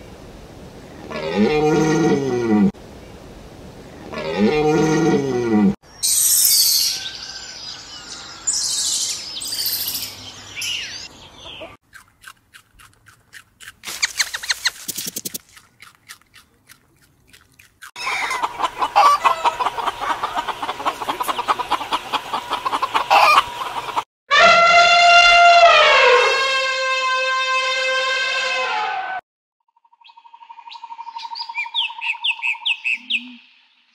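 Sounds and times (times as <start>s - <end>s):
rabbit chewing crunchily: 11.8s - 18.0s
hens clucking: 18.0s - 24.0s.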